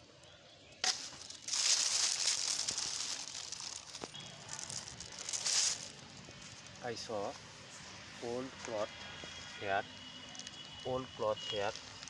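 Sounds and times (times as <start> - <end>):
plastic crinkling and rustling: 0.8 - 6.9, 11.4 - 12.0.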